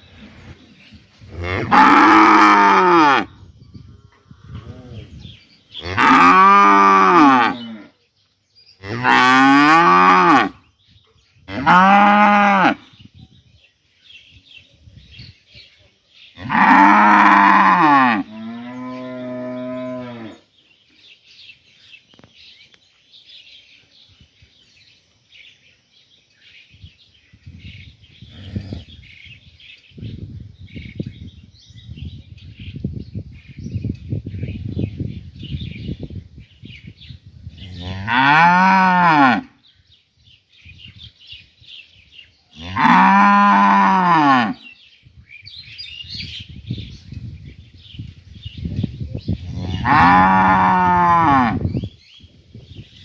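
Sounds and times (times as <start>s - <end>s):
cows mooing: 1.4s - 3.3s, 5.8s - 7.9s, 8.8s - 10.6s, 16.4s - 20.4s, 37.8s - 39.5s, 42.6s - 44.6s, 49.6s - 51.6s.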